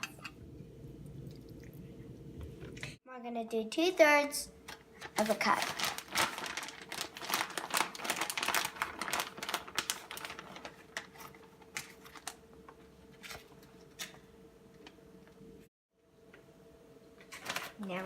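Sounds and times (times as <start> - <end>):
faint steady hum: 0.0 - 5.2.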